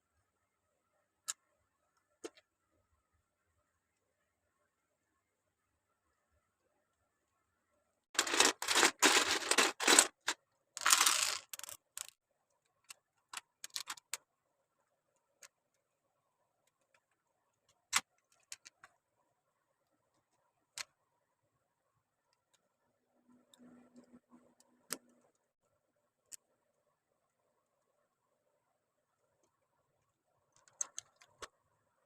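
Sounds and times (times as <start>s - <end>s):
plastic bricks clicking: 8.2s - 12.2s, 30.6s - 31.5s
plastic bricks rattling: 8.2s - 12.2s.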